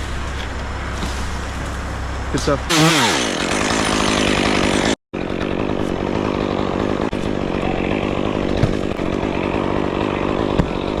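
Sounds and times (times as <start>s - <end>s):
two-stroke chainsaw running: 2.7s - 11.0s.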